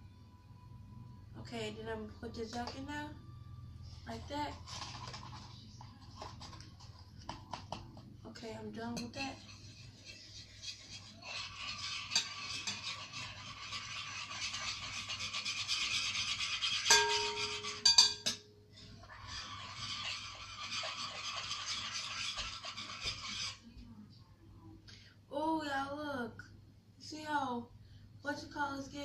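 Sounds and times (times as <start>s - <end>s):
spoon scraping and stirring in bowl: 4.5s - 8.1s, 8.8s - 23.8s
spoon clinking against bowl: 16.8s - 18.6s.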